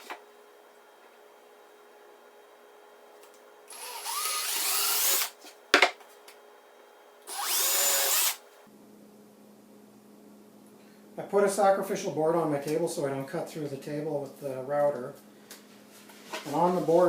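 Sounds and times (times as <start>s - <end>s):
power drill drilling through plywood: 3.7s - 5.4s, 7.3s - 8.5s.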